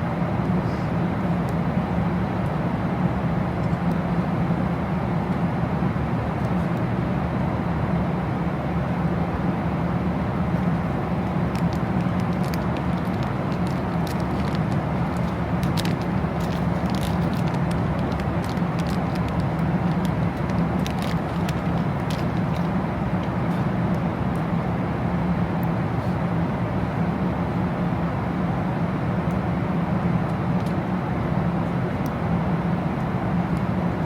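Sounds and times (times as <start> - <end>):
vehicle interior rumble: 9.2 - 27.5.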